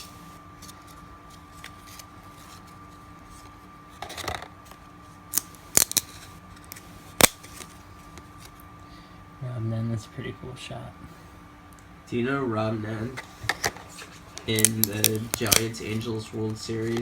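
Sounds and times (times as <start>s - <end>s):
faint steady hum: 0.0s - 17.0s
trading cards snapping and sliding: 3.4s - 8.6s, 13.4s - 16.1s, 16.7s - 17.0s.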